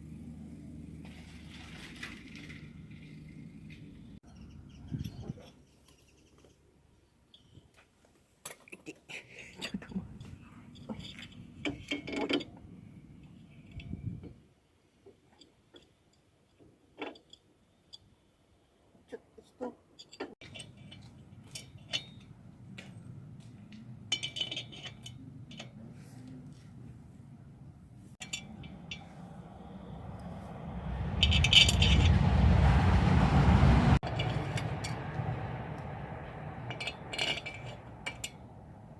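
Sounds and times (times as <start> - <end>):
metal tools clinking: 9.6 - 12.6, 24.1 - 25.8, 36.6 - 38.5
low rumbling handling noise: 28.2 - 38.9
loud rushing noise: 28.7 - 37.2.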